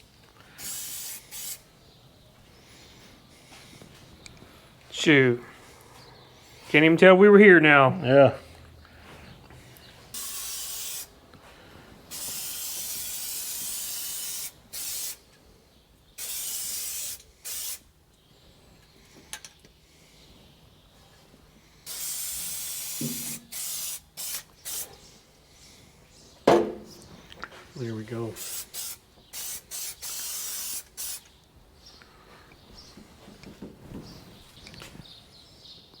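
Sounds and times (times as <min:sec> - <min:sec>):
spray paint hissing bursts: 0:00.6 - 0:01.7, 0:10.1 - 0:11.2, 0:12.1 - 0:15.2, 0:16.2 - 0:17.8, 0:21.8 - 0:24.9, 0:28.4 - 0:31.3.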